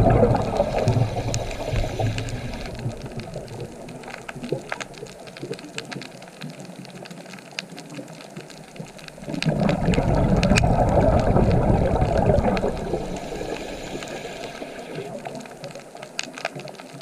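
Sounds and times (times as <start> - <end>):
low water rush: 0.0 - 5.2, 9.0 - 16.0
water splashing and trickling: 0.0 - 17.0
small clicks: 0.8 - 10.9, 13.5 - 17.0.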